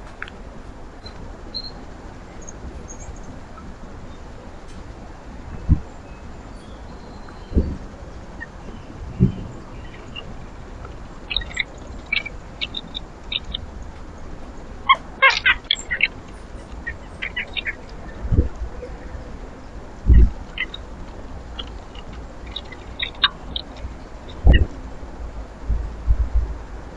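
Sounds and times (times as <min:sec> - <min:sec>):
small birds chirping: 0:00.0 - 0:26.9
dull low thumps: 0:05.5 - 0:05.9, 0:07.5 - 0:14.6, 0:16.1 - 0:26.9.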